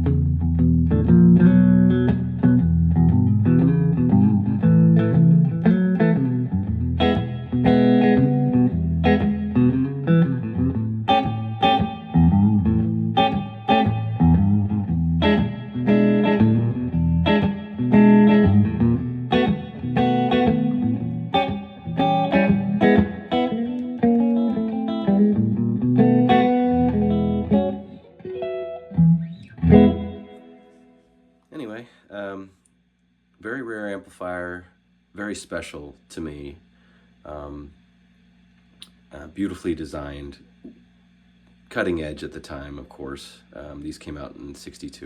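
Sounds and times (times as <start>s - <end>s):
electric guitar playing: 0.0s - 31.3s.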